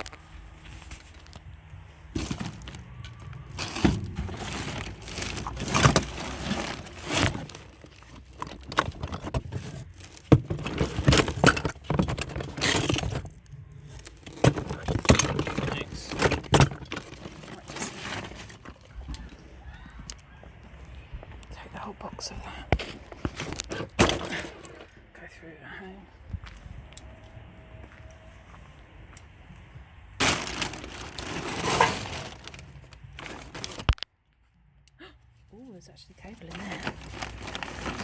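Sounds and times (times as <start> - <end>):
scrap clattering and clinking: 0.6 - 19.6, 22.8 - 25.0, 30.2 - 34.0, 36.4 - 38.0.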